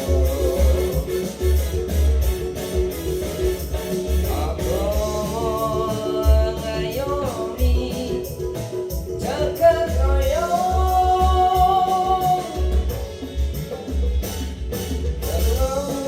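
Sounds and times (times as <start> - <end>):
person singing long notes: 0.0 - 1.9, 4.2 - 8.6, 9.2 - 13.1
guitar: 0.0 - 16.0
low steady beat: 0.0 - 16.0.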